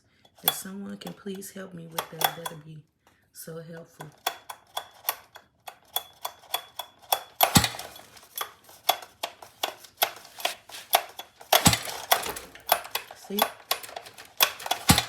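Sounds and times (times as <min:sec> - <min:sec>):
rattling clack: 0:04.0 - 0:15.0
recoil pull-starter clicking: 0:04.0 - 0:15.0.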